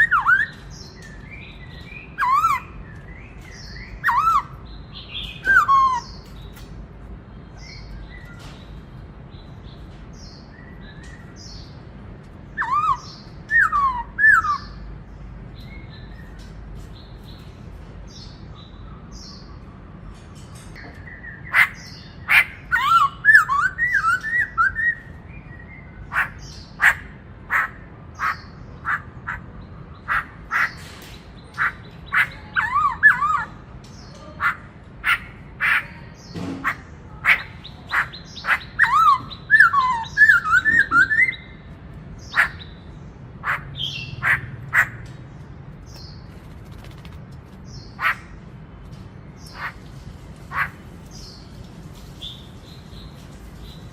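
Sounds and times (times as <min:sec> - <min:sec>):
bird singing whistles and calls: 0:00.0 - 0:06.4, 0:12.5 - 0:14.9, 0:21.0 - 0:27.0, 0:31.6 - 0:33.6, 0:37.3 - 0:41.7.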